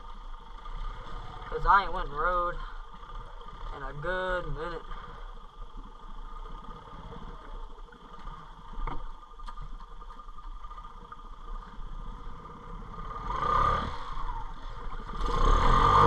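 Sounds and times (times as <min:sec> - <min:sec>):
atv engine running at low revs: 0:00.0 - 0:16.0.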